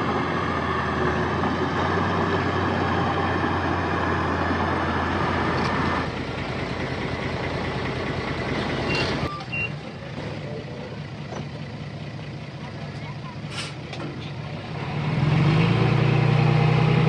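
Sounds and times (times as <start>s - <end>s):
heavy diesel machinery running: 0.0s - 17.0s
short high beeps: 8.9s - 9.8s.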